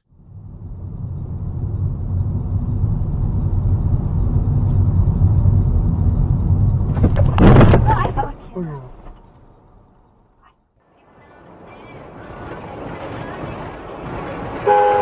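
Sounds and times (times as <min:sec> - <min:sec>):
vehicle engine and road noise: 0:00.0 - 0:15.0
loud crash bangs: 0:06.8 - 0:08.4.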